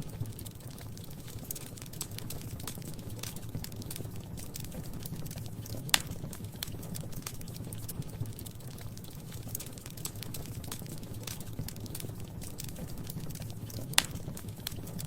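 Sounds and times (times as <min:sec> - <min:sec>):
rumble of flames: 0:00.0 - 0:15.0
wood fire crackling: 0:00.0 - 0:15.0.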